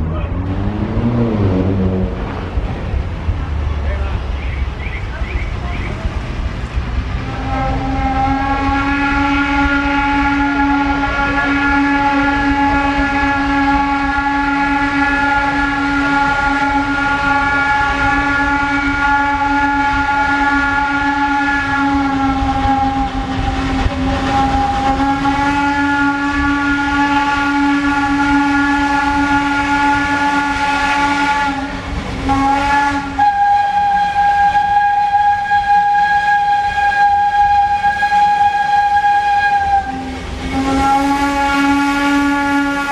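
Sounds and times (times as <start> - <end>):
low rumble: 0.0 - 11.2, 21.7 - 25.5
train horn chord: 7.2 - 42.9.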